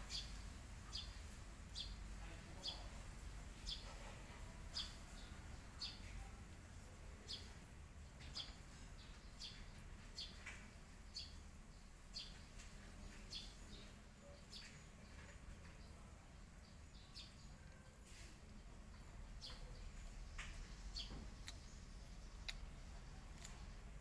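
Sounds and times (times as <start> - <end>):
faint bird chirps: 7.1 - 23.5.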